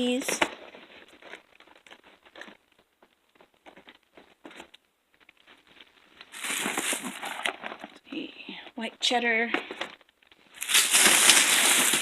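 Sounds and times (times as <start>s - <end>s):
plastic bag crinkling: 5.4s - 8.0s, 9.7s - 12.0s.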